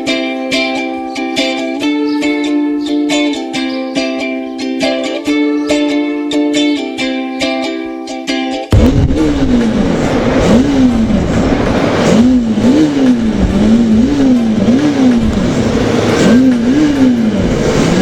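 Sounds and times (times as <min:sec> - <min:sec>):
motorcycle engine throttle blips: 0:08.7 - 0:18.0.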